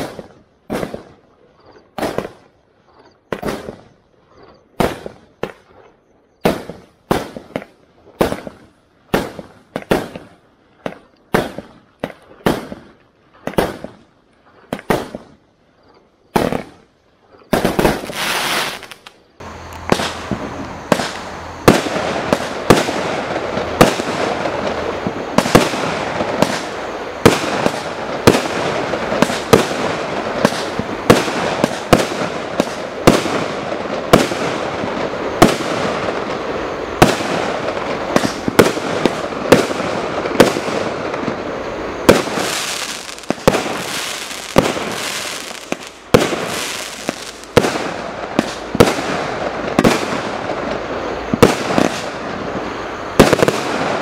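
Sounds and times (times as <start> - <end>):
firework bangs: 0.0 - 1.2, 3.3 - 4.0, 4.8 - 14.0, 14.6 - 15.4, 16.3 - 54.0
firework shots: 0.0 - 2.5, 3.3 - 4.0, 4.8 - 14.0, 14.6 - 15.4, 16.3 - 16.9, 17.5 - 54.0
loud rushing noise: 19.4 - 27.2.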